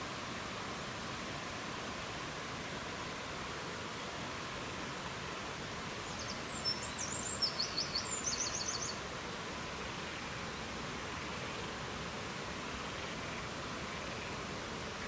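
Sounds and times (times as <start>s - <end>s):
songbird chirping and trilling: 6.1s - 9.0s.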